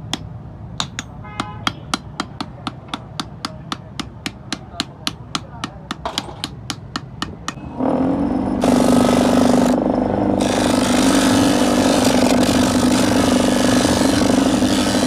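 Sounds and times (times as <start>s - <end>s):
hammer tapping on steel: 0.0s - 7.6s
grinder grinding steel: 7.8s - 15.0s
power grinder motor humming: 8.6s - 15.0s.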